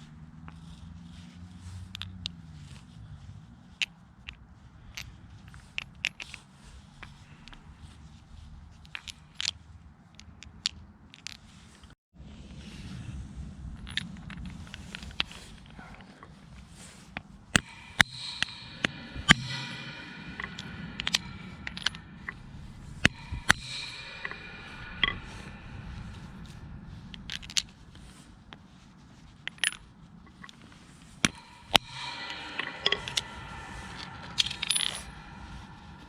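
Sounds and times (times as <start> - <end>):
metal scraping: 13.8 - 36.0.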